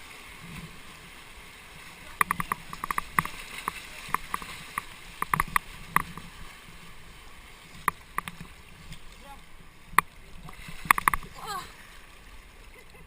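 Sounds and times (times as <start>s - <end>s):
river water rushing: 0.0s - 12.8s
sharp clicks and knocks: 2.2s - 6.3s, 7.8s - 8.5s, 10.8s - 11.3s.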